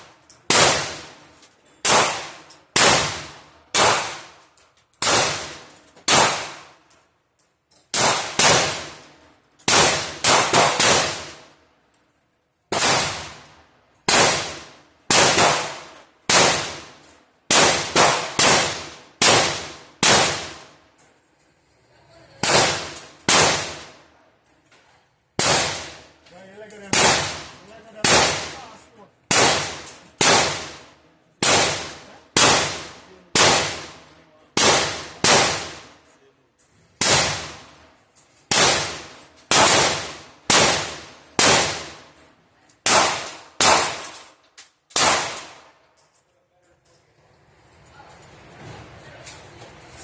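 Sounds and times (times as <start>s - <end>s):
handgun shots with echo: 0.5s - 1.1s, 1.8s - 4.4s, 5.0s - 6.7s, 7.9s - 8.9s, 9.6s - 11.4s, 12.7s - 13.4s, 14.1s - 16.8s, 17.5s - 20.6s, 22.4s - 23.9s, 25.4s - 26.0s, 26.9s - 28.6s, 29.3s - 30.8s, 31.4s - 33.9s, 34.6s - 35.9s, 37.0s - 37.7s, 38.5s - 42.0s, 42.8s - 45.8s.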